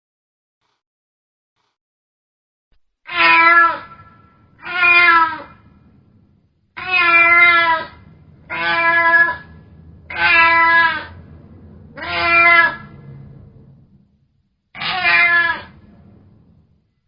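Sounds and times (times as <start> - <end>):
cat meowing: 3.1 - 5.7, 6.8 - 11.3, 12.0 - 13.1, 14.8 - 15.9.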